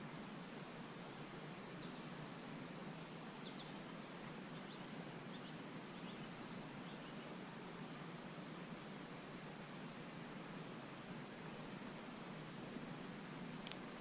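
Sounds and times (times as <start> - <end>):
steady background hiss: 0.0 - 14.0
faint bird chirps: 0.9 - 7.4.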